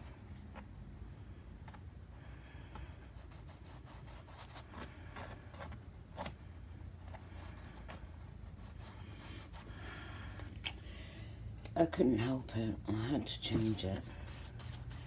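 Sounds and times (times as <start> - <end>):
low steady hum: 0.0 - 15.0
paintbrush scratching on canvas: 13.5 - 15.0.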